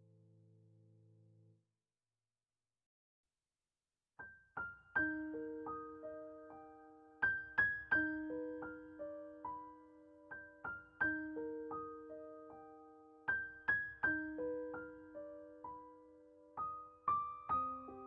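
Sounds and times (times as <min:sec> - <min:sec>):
gentle piano melody: 0:04.2 - 0:18.0.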